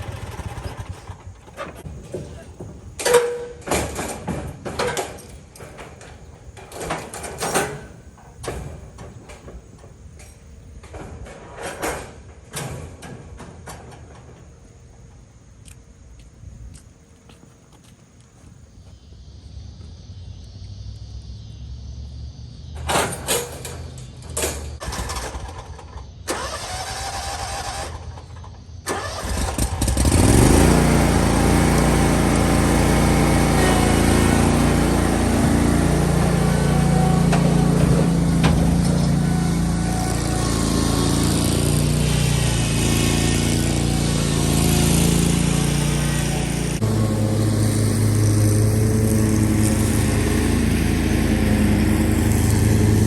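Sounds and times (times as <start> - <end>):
lawn mower engine running: 0.0 - 9.7, 22.9 - 53.0
knocks and clunks: 0.5 - 14.5, 35.2 - 40.8.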